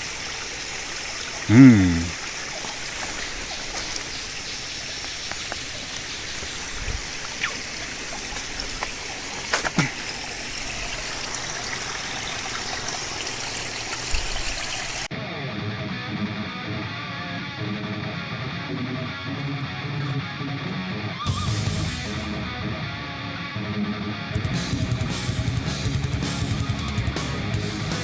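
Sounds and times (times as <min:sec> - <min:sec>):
flowing water rushing: 0:00.0 - 0:15.1.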